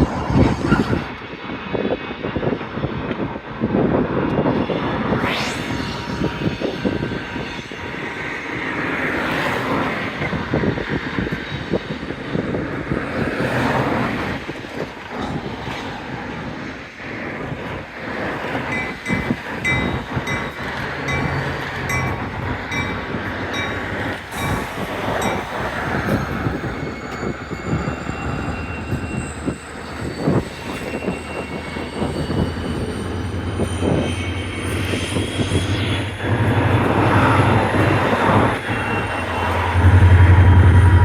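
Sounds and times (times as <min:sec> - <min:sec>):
train wheels squealing: 0:04.4 - 0:17.4, 0:18.1 - 0:41.0
low engine drone: 0:04.6 - 0:08.6, 0:33.1 - 0:41.0.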